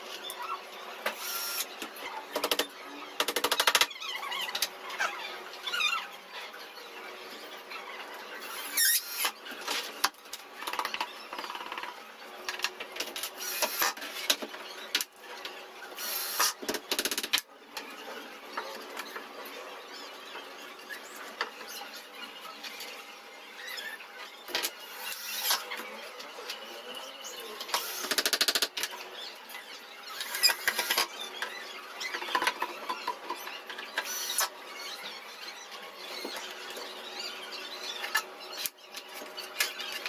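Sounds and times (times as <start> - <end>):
knocks and clicks with squeaks: 0.1 - 6.5, 7.3 - 40.0
small power tool buzzing: 1.1 - 1.8, 8.4 - 9.4, 13.4 - 14.0, 16.0 - 16.6, 24.9 - 25.6, 27.7 - 28.5, 34.0 - 34.5.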